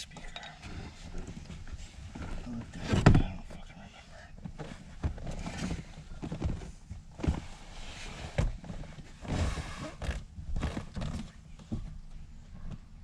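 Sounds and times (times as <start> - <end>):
knocks and thuds of handling: 2.2 - 3.4, 4.4 - 7.6, 8.2 - 12.0.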